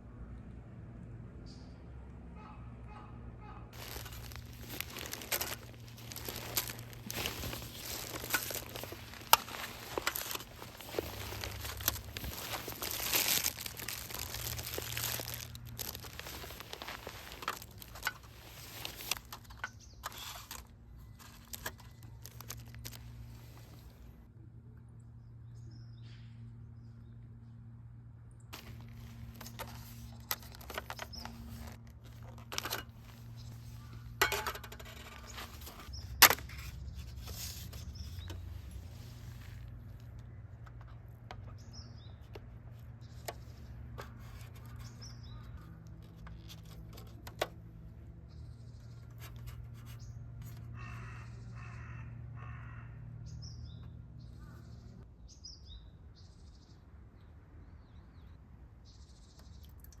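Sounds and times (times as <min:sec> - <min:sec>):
small birds chirping: 0:01.4 - 0:24.1, 0:28.4 - 0:34.2, 0:34.9 - 0:47.3, 0:48.0 - 1:00.0
camp gear knocking and clicking: 0:03.7 - 0:23.1, 0:28.6 - 0:38.8.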